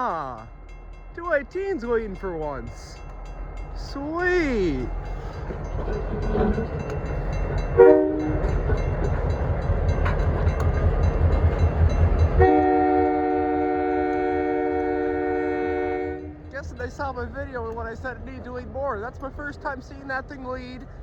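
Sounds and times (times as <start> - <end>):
locomotive engine rumbling: 0.0 - 21.0
locomotive air horn blasts: 7.8 - 8.5, 12.4 - 16.5.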